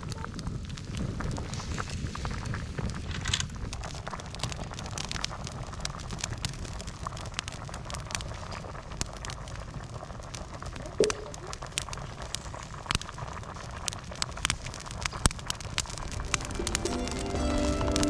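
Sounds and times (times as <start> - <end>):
campfire crackling: 0.0 - 18.0
sharp pops and clicks: 10.4 - 16.8.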